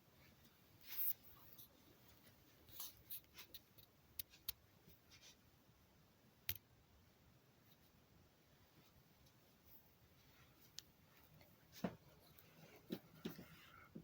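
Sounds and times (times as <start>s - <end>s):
faint clicks and taps: 10.2s - 14.0s.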